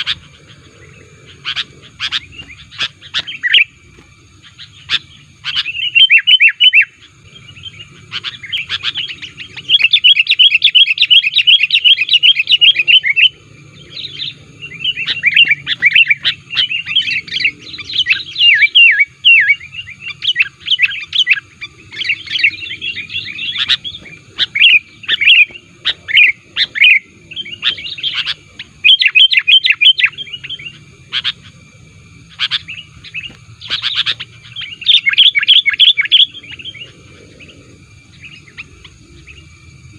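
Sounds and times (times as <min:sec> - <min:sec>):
bird chattering whistled song: 0:00.0 - 0:39.9.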